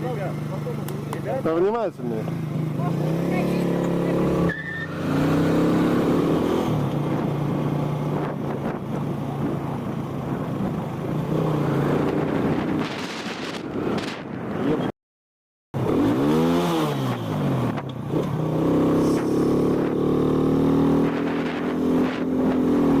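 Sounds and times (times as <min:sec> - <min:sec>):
vehicle engines running: 0:00.0 - 0:14.8
engine revving: 0:01.5 - 0:07.3, 0:15.8 - 0:23.0.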